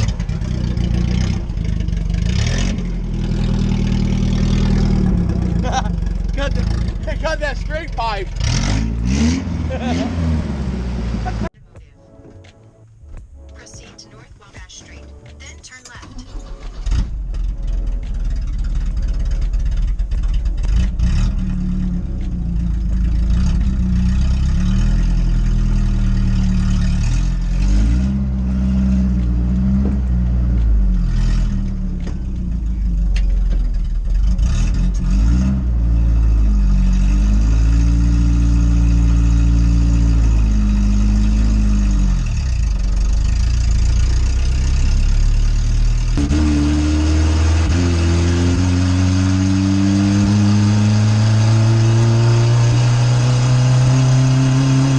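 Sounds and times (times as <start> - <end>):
car engine revving through gears: 0.0 - 11.5, 16.0 - 54.9.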